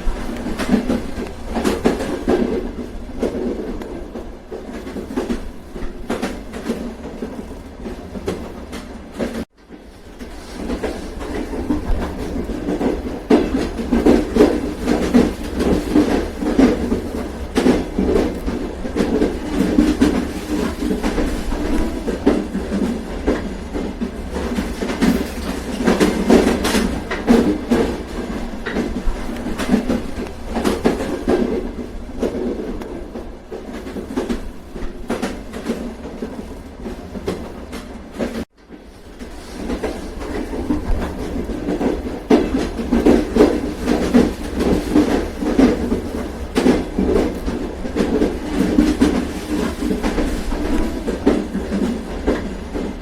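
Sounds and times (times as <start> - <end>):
train rumbling along track: 0.0 - 53.0
wheels clacking over rail joints: 0.0 - 53.0.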